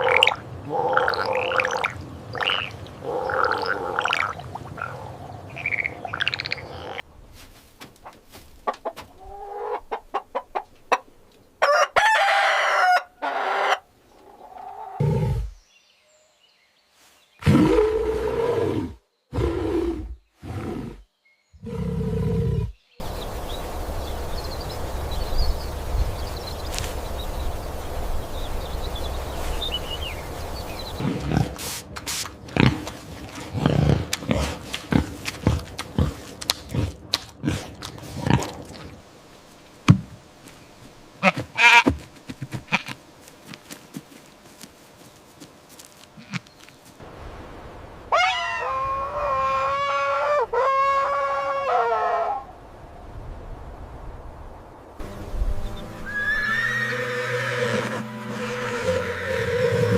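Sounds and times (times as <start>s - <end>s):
chickens clucking: 8.0s - 11.8s
rooster crowing: 11.6s - 13.8s.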